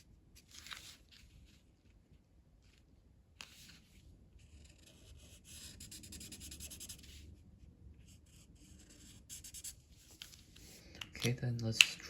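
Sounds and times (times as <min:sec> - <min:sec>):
pencil scratching on paper: 0:04.4 - 0:07.2, 0:08.0 - 0:09.8.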